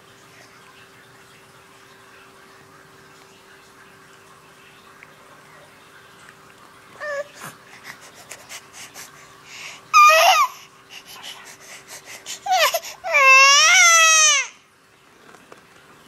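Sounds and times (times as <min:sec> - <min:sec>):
baby crying: 0:07.0 - 0:07.5, 0:09.9 - 0:14.6.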